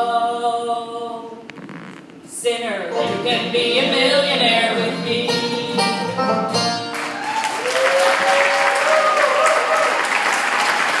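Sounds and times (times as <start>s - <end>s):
bluegrass band with banjo and guitar: 2.9s - 7.2s
audience applause: 6.9s - 11.0s.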